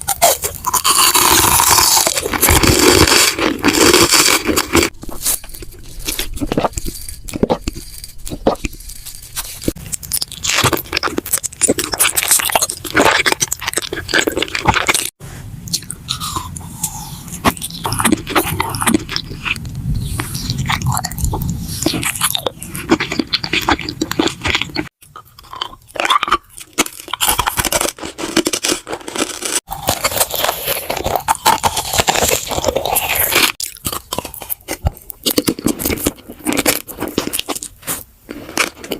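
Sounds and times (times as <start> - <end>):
crunchy bites and chewing: 0.0 - 38.9.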